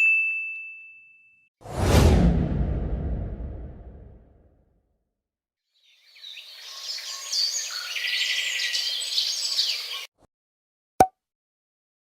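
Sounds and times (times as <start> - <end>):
birds chirping: 5.8 - 10.1.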